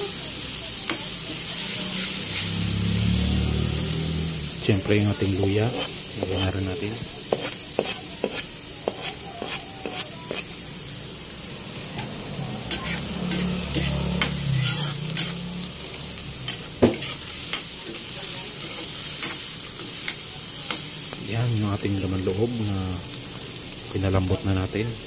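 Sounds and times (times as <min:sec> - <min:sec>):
food sizzling in hot oil: 0:00.0 - 0:25.0
metal spoon scraping a pan: 0:00.8 - 0:02.8, 0:05.2 - 0:10.6, 0:12.6 - 0:21.0.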